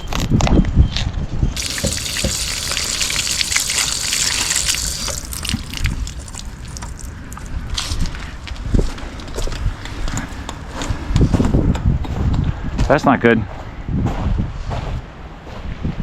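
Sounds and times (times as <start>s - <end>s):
wind gusting over microphone: 4.8s - 15.1s.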